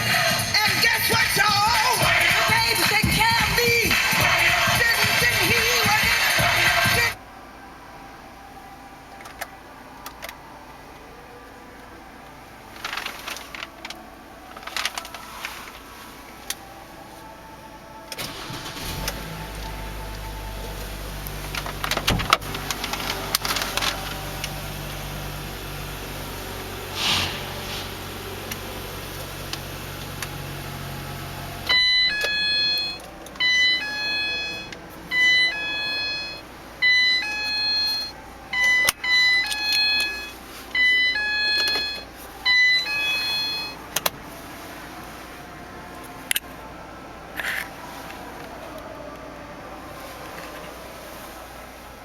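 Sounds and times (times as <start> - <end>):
van engine idling: 11.5 - 37.1
dashboard warning chime: 31.6 - 43.8.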